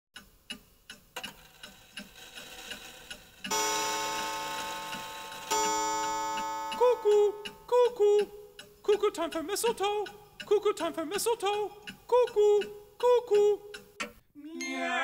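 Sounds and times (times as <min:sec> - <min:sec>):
clock ticking: 0:00.2 - 0:14.2
ringing clock chimes: 0:03.5 - 0:07.7
two-note cuckoo calls: 0:05.5 - 0:08.5.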